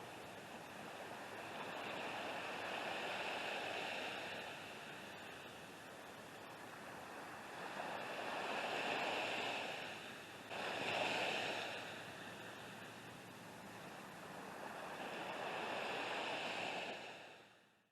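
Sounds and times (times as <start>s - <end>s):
ocean surf breaking: 7.2s - 17.4s.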